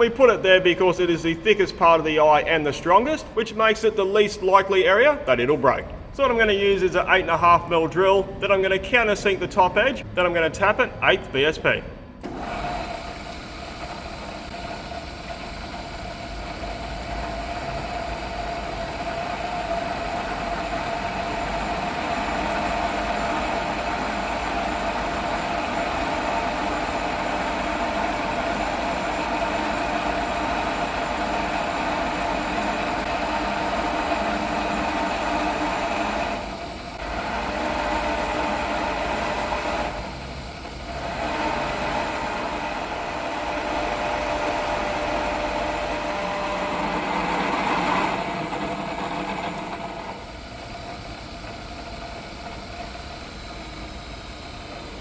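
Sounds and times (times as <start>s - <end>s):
machining noise with humming tone: 0.0s - 55.0s
milling machine drilling steel: 12.2s - 55.0s.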